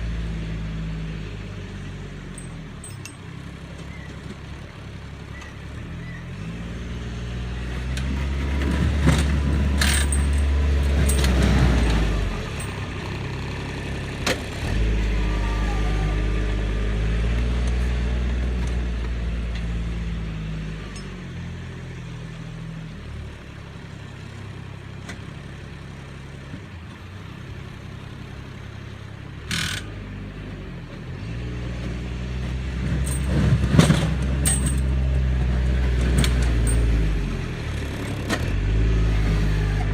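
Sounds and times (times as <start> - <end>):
engine revving under load: 0.0 - 23.0, 29.4 - 39.9
snow plow knocks and scrapes: 8.0 - 12.8, 31.9 - 38.8.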